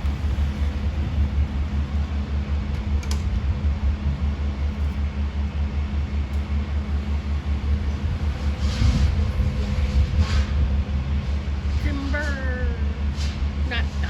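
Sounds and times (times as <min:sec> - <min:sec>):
heavy engine throbbing: 0:00.0 - 0:14.0.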